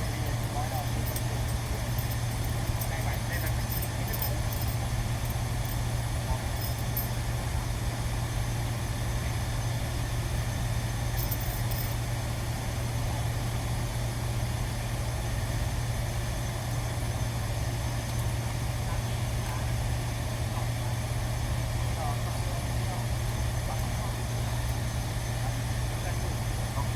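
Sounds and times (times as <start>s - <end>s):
machinery humming: 0.0s - 7.2s.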